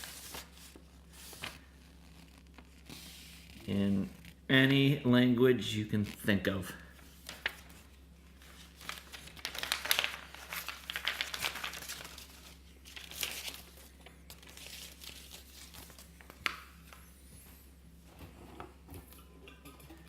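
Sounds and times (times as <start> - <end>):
packaging crinkling: 7.2 - 17.0.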